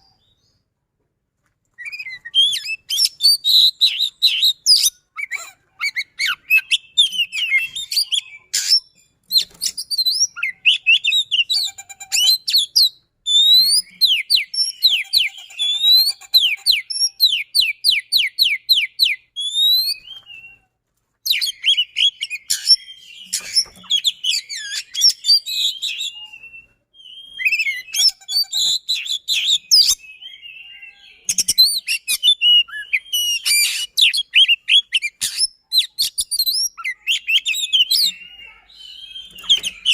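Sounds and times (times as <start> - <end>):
bird singing chirps and whistles: 1.8 - 20.6, 21.3 - 39.9.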